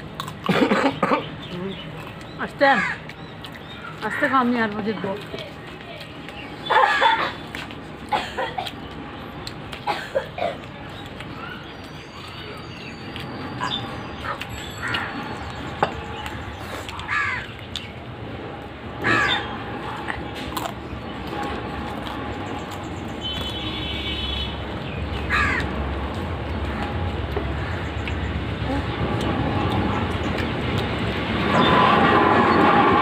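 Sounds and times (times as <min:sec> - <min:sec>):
birds calling: 0:00.0 - 0:32.9
low rumble: 0:28.1 - 0:33.0.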